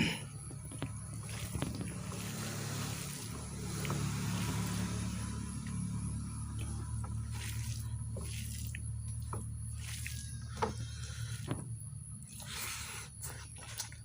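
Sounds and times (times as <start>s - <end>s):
low hum: 0.0s - 14.0s
wet eating sounds: 0.2s - 14.0s.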